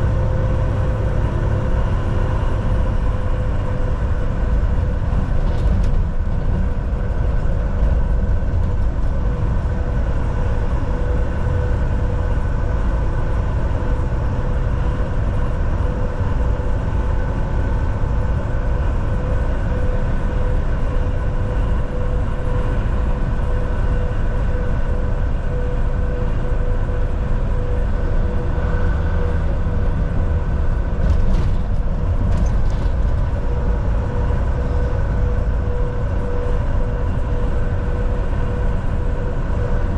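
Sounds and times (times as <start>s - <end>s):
drivetrain whine: 0.0s - 39.9s
truck engine and tyre rumble: 0.0s - 39.9s.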